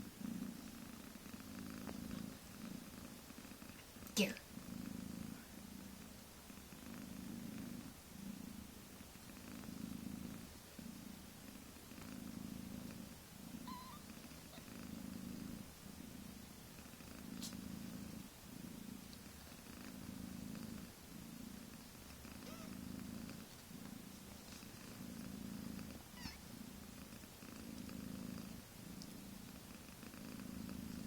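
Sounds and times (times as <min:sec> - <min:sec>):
cat purring: 0:00.0 - 0:31.0
faint high squeaks: 0:13.7 - 0:14.7.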